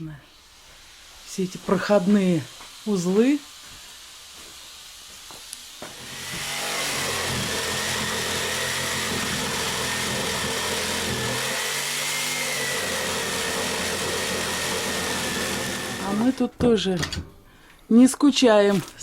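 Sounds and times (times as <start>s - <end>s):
power tool high whine: 5.9s - 16.4s.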